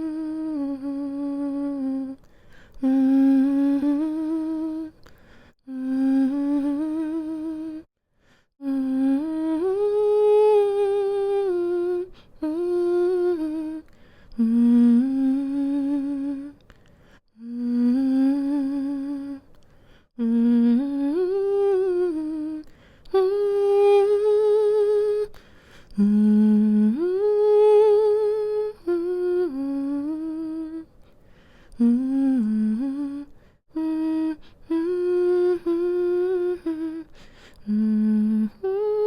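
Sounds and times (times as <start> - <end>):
woman humming a lullaby: 0.0 - 2.2, 5.6 - 7.9, 17.4 - 19.5, 26.0 - 30.9, 31.8 - 39.0.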